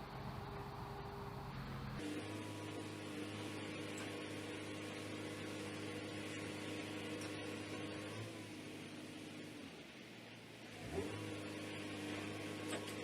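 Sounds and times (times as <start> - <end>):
truck diesel engine running: 0.0 - 9.9.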